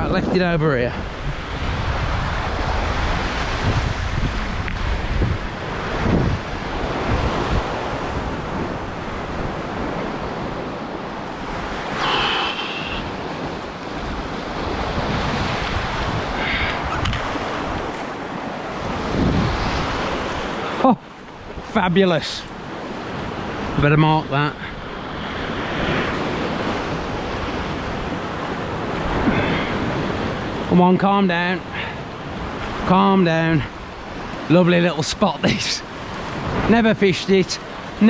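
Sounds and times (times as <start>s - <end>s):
wind buffeting microphone: 0.0s - 20.8s
waves on rocky shore: 0.0s - 38.0s.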